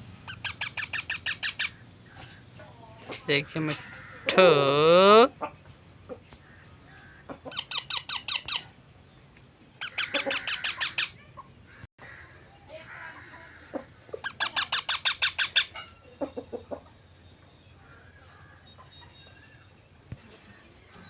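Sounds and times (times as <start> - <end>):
parrot squawking: 0.3 - 1.8, 7.5 - 8.6, 9.8 - 11.2, 14.2 - 15.9.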